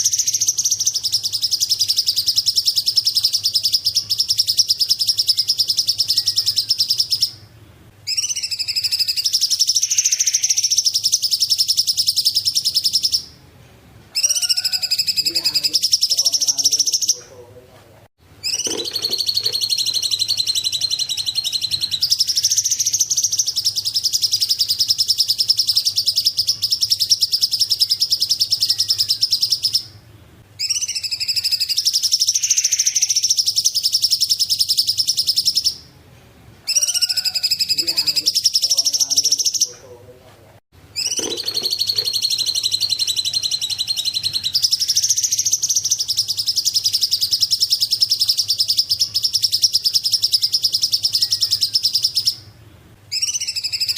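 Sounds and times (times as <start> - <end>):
songbird trilling: 0.0 - 7.5, 8.1 - 13.4, 14.2 - 17.3, 18.4 - 30.0, 30.6 - 35.9, 36.7 - 39.8, 41.0 - 52.5, 53.1 - 53.9.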